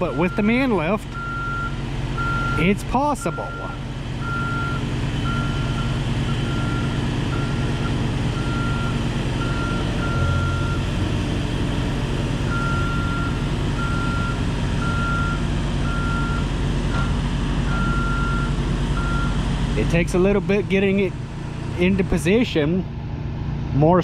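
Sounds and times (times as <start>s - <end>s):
engine running: 0.0s - 24.0s
motion alarm beeping: 1.2s - 10.8s, 12.5s - 17.1s, 17.7s - 19.4s.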